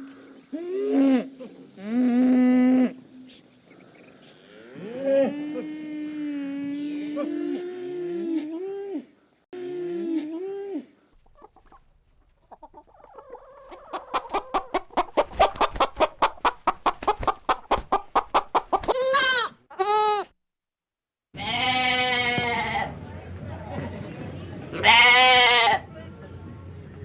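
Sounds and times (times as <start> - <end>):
hen cackling: 12.5 - 20.3.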